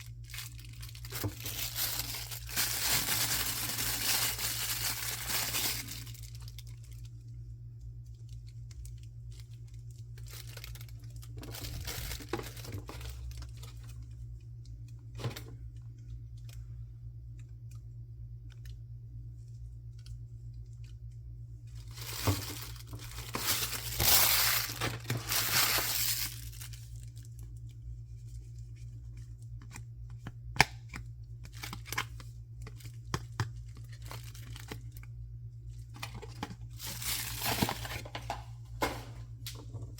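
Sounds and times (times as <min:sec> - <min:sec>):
packaging rustling: 0:00.0 - 0:07.1, 0:08.4 - 0:14.0, 0:21.7 - 0:27.3, 0:36.0 - 0:39.2
wrapper tearing and crinkling: 0:00.0 - 0:07.1, 0:08.7 - 0:14.0, 0:21.8 - 0:27.6, 0:31.4 - 0:35.1, 0:36.0 - 0:38.2.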